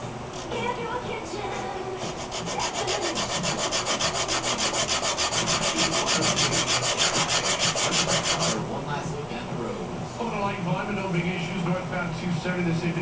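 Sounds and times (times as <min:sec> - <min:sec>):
hand tool scraping wood: 0:02.0 - 0:08.6.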